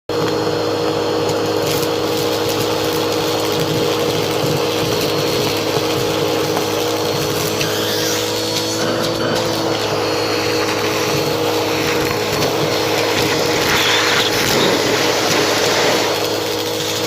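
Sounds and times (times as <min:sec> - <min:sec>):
vacuum cleaner running: 0:00.1 - 0:17.0.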